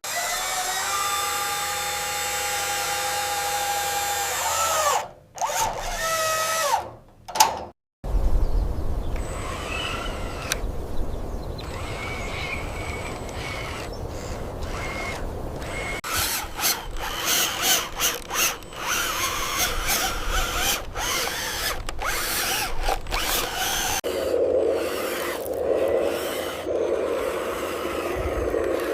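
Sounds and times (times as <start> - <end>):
small electric motors whirring: 0.0 - 6.9, 9.2 - 10.7, 11.6 - 28.9.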